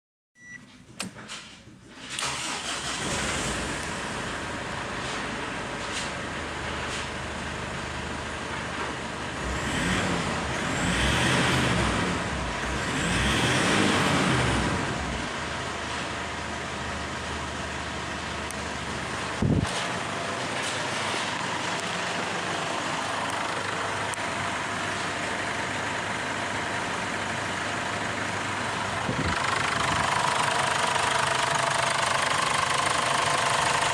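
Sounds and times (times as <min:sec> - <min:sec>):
engine starting and idling: 0:01.0 - 0:06.2, 0:13.2 - 0:33.9
engine revving: 0:02.2 - 0:04.6, 0:09.3 - 0:15.5, 0:29.0 - 0:32.4.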